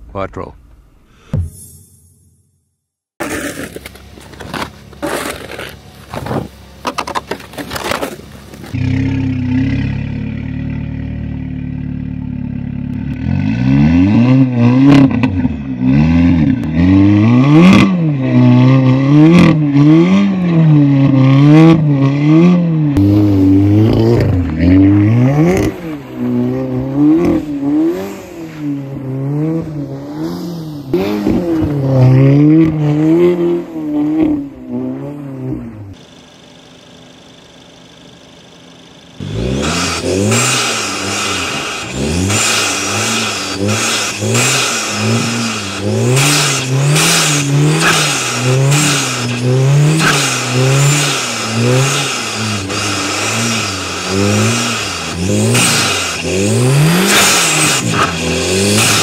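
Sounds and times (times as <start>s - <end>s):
scraping and crackling: 3.2s - 8.8s
car engine revving: 3.2s - 59.0s.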